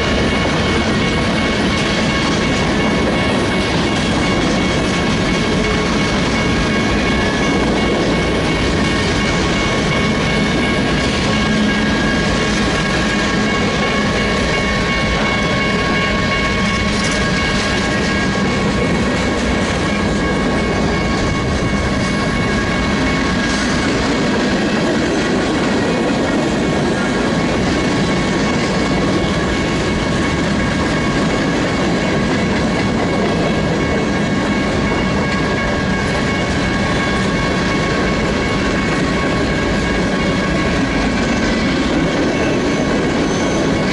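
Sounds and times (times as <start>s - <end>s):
rumble of freight cars: 0.0s - 43.9s
wheels clacking over rail joints: 0.0s - 43.9s
high-pitched wheel squeal: 42.3s - 43.9s.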